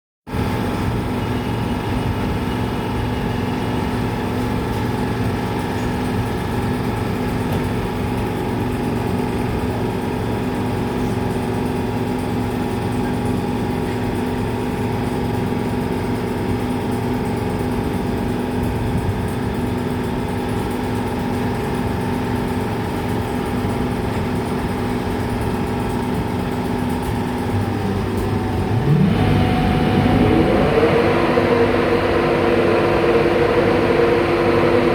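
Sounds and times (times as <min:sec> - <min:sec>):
train engine idling hum: 0:00.3 - 0:34.9
rising whine: 0:27.5 - 0:34.9.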